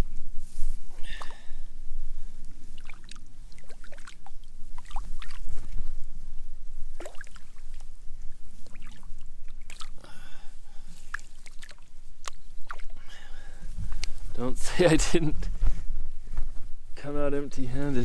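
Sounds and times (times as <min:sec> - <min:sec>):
water splashing and sloshing: 0:02.4 - 0:14.3.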